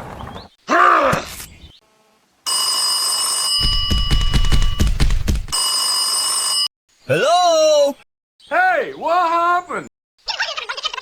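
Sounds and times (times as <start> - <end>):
telephone bell ringing: 2.5 - 6.7.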